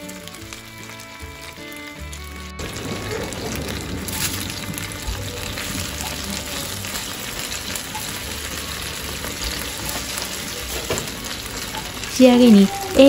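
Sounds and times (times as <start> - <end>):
chicken sizzling in a frying pan: 0.0 - 13.0.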